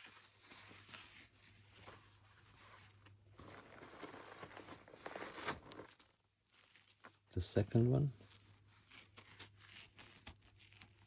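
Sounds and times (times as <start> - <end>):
fabric rustling: 0.0 - 7.0.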